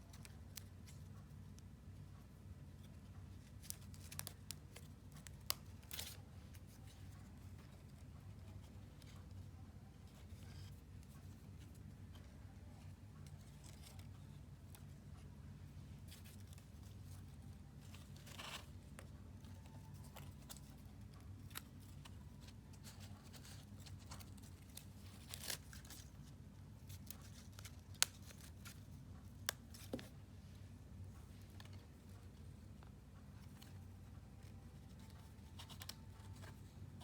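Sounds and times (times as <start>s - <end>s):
paper and tool clicks and snips: 26.8s - 30.1s.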